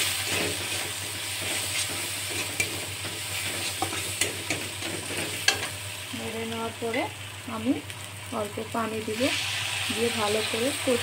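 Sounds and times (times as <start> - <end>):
metal spatula scraping a pan: 0.0 - 5.7
vegetables sizzling in oil: 0.0 - 11.0.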